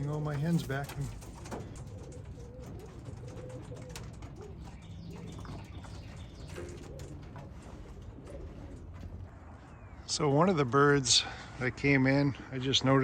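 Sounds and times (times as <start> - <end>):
pigeons cooing: 0.0 - 10.0.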